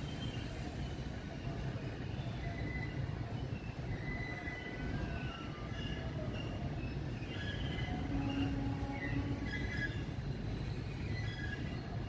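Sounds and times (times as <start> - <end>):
wheels rumbling on rail: 0.0 - 12.0
low wheel squeal: 3.9 - 11.9
high-pitched wheel squeals: 3.9 - 12.0.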